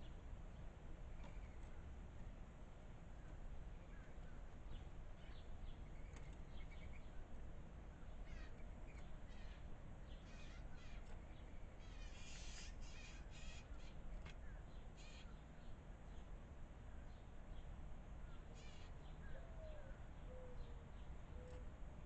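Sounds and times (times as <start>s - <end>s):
faint low hum: 0.0s - 22.0s
harsh raspy bird calls: 8.2s - 8.6s, 9.2s - 11.1s, 11.8s - 14.0s, 15.0s - 15.4s, 18.6s - 19.0s.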